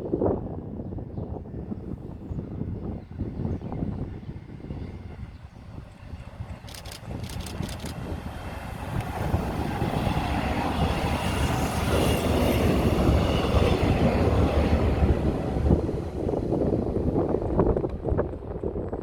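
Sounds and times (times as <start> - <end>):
train rumble and wheel noise: 0.0 - 19.0
quick sharp clicks: 6.6 - 8.0.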